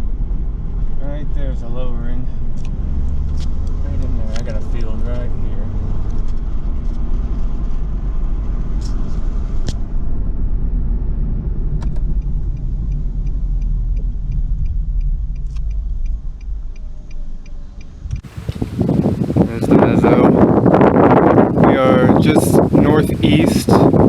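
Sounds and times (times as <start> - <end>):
road and engine rumble in car: 0.0 - 24.0
turn signal ticking: 11.6 - 19.3.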